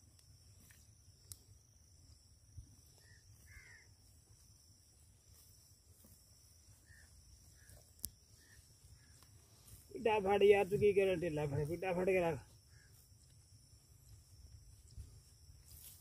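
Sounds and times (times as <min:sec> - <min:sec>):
faint short bird calls: 0:03.0 - 0:03.9, 0:06.8 - 0:09.2, 0:12.7 - 0:13.0.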